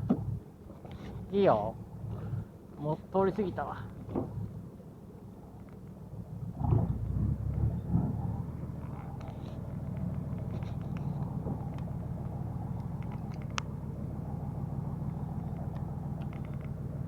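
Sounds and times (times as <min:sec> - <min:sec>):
boat engine droning: 0:00.0 - 0:17.0
light clicks and ticks: 0:05.6 - 0:06.0, 0:08.8 - 0:11.9, 0:12.8 - 0:13.8, 0:15.0 - 0:16.8.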